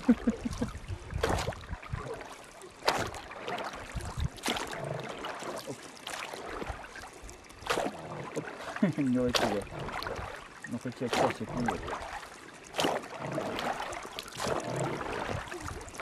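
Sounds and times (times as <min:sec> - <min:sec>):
water splashing and lapping: 0:00.0 - 0:16.0.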